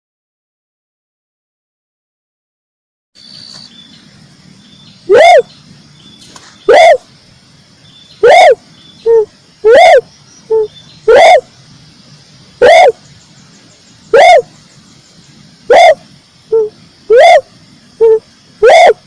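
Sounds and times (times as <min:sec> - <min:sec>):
dove cooing: 0:05.1 - 0:05.5, 0:06.7 - 0:07.1, 0:08.2 - 0:11.5, 0:12.6 - 0:13.0, 0:14.1 - 0:14.5, 0:15.6 - 0:19.0.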